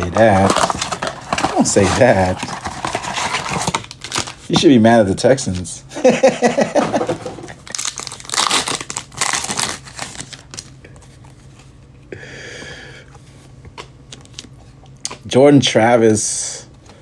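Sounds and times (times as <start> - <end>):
card pack wrappers crinkling and tearing: 0.0 - 5.0, 6.8 - 11.0.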